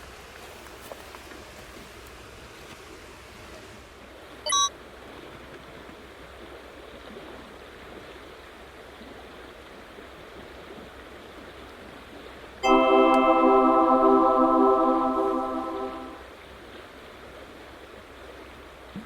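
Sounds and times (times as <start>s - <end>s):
bright ding: 12.6s - 16.2s.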